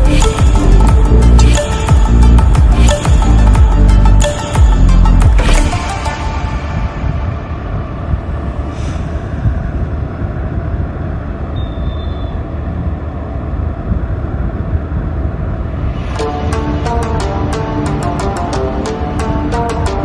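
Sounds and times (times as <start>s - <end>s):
motorcycle road noise: 5.2s - 20.0s
wind buffeting microphone: 5.8s - 20.0s
faint high beep: 11.6s - 12.4s.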